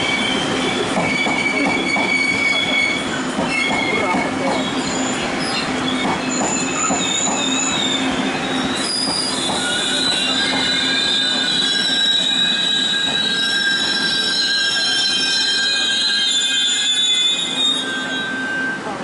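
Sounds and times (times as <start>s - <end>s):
wheel and brake squeals: 0.0s - 19.0s.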